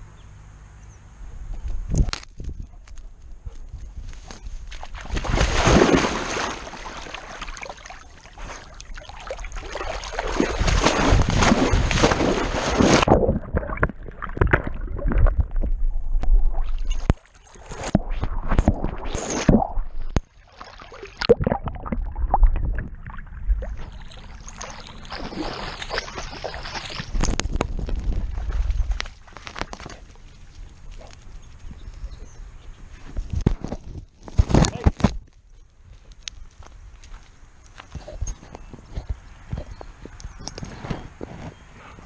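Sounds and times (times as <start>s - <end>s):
water splashing and sloshing: 4.1s - 31.8s.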